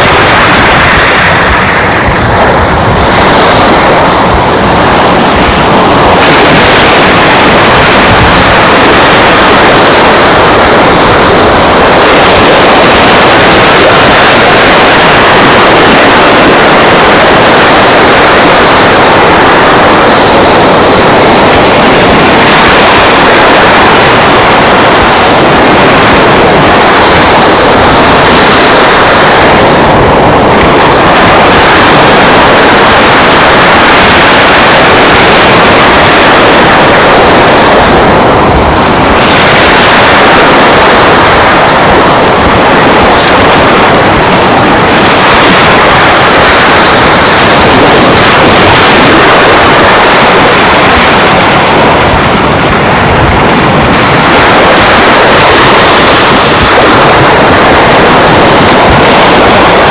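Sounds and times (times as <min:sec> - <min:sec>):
waves washing on beach: 0:00.0 - 0:59.9
wind on microphone: 0:00.0 - 0:59.9.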